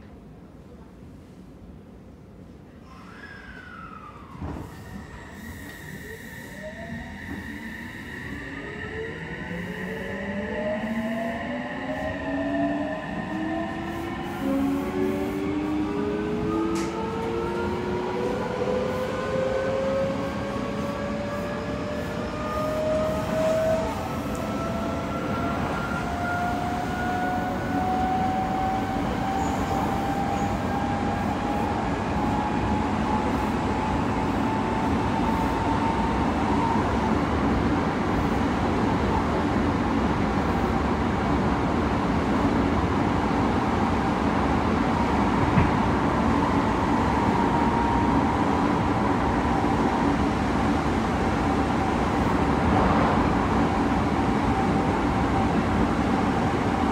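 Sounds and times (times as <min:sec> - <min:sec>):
train wheels rumbling on rail: 0:13.1 - 0:56.9.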